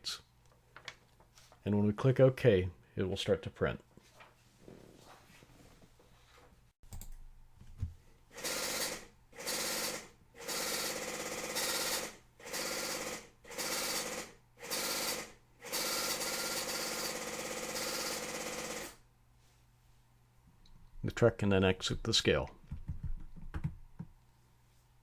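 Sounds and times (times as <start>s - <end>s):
dot-matrix printer buzzing: 8.4s - 19.0s.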